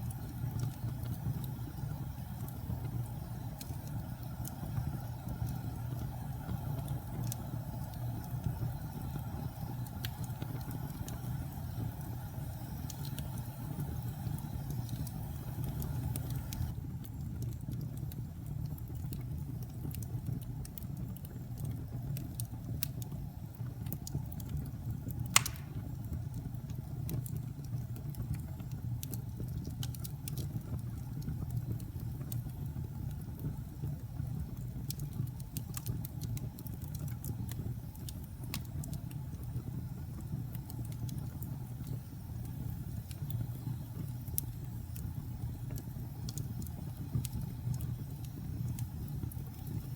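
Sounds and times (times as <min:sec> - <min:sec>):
fire crackles: 0:00.0 - 0:49.9
fire rumbling in fireplace: 0:00.0 - 0:49.9
loud fire pop: 0:25.3 - 0:26.0.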